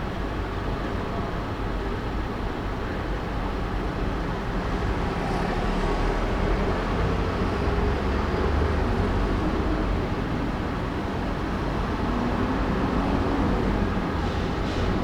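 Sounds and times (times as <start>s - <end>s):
car engine and road noise: 3.9s - 15.0s.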